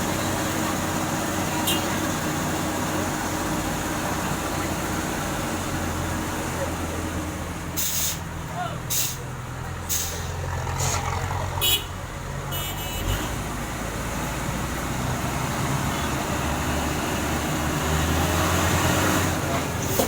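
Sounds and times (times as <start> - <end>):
heavy truck engine running: 0.0 - 20.0
short air hisses: 7.8 - 8.2.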